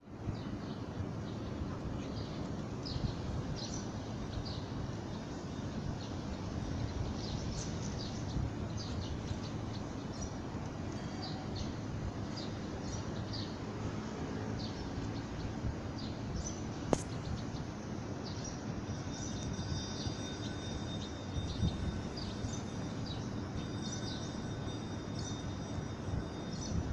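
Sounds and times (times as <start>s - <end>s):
low outdoor rumble: 0.0s - 25.0s
small birds chirping: 0.4s - 13.7s
sharp click: 16.9s - 17.2s.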